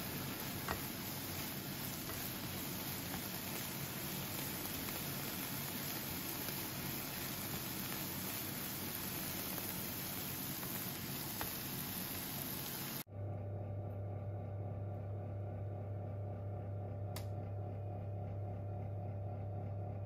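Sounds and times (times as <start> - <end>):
steady hiss: 0.0 - 13.1
steady low hum: 13.1 - 20.0.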